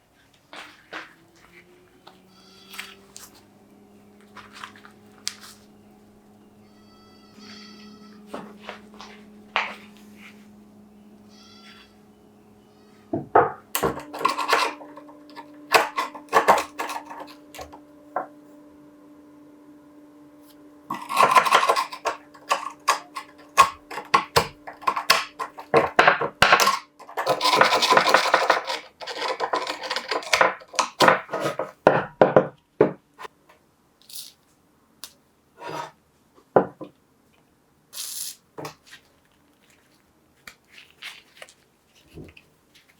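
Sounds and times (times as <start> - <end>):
faint steady hum: 0.0 - 42.9
metal clinks and scraping: 13.8 - 17.8, 20.9 - 31.7.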